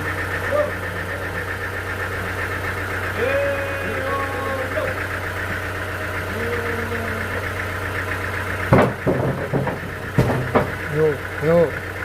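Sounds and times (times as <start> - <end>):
engine idling: 0.0 - 12.0
sharp knocks: 8.7 - 11.2.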